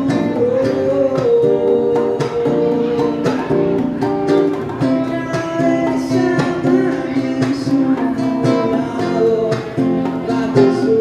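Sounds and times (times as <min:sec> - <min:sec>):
strummed acoustic guitar: 0:00.0 - 0:11.0.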